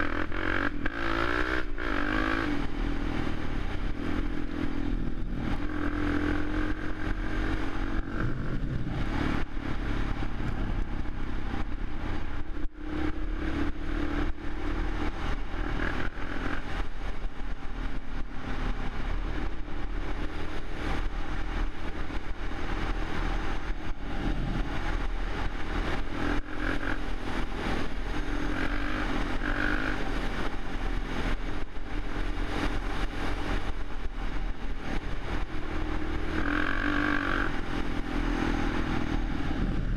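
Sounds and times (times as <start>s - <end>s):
quad engine revving: 0.0s - 3.4s, 35.6s - 39.9s.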